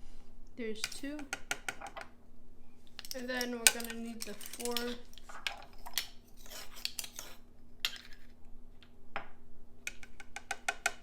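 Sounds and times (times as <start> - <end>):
spoon scraping dishes: 0.8 - 2.1, 2.9 - 8.3.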